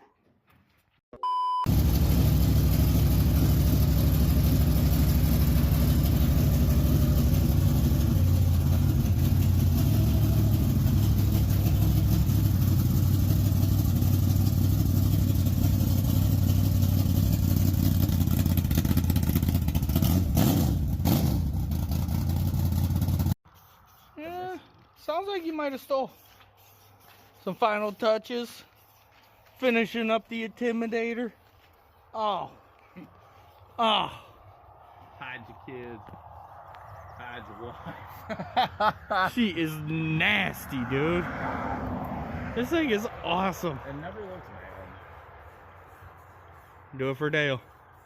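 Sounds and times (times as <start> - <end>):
short high beep: 1.2 - 1.7
vehicle engine running: 1.7 - 23.4, 39.3 - 48.0.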